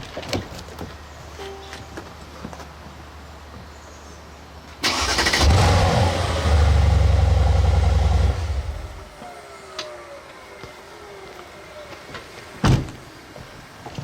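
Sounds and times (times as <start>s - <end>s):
car engine starting and rumbling: 4.8s - 10.8s.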